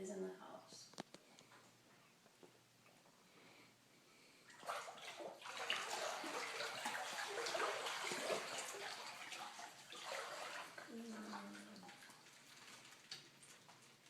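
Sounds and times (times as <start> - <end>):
boots splashing through floodwater: 4.6 - 10.8.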